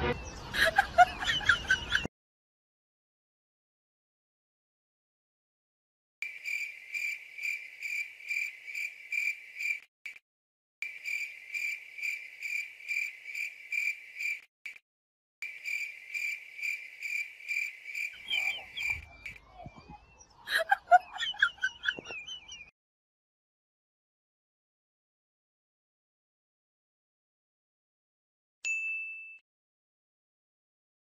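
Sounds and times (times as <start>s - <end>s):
pulsing high chirping: 18.0s - 22.6s
squeaky chirps: 18.0s - 22.7s.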